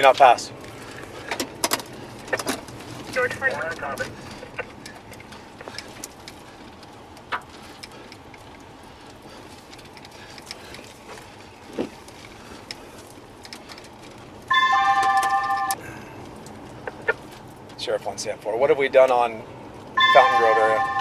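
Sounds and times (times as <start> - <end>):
low background noise: 0.0 - 21.0
loud electronic tone: 20.0 - 21.0.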